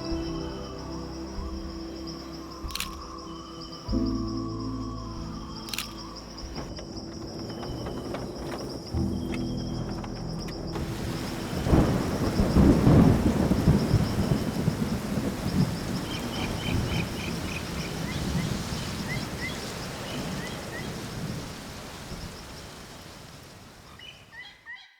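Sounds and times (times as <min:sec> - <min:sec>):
rain: 0:00.0 - 0:24.8
thunder rumbling: 0:04.6 - 0:23.9.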